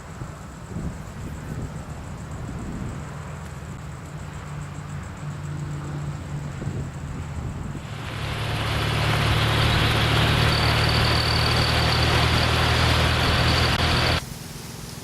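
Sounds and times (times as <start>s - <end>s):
wind and road noise: 0.0s - 15.0s
motorcycle engine running: 7.8s - 14.2s
faint high whine: 7.8s - 15.0s.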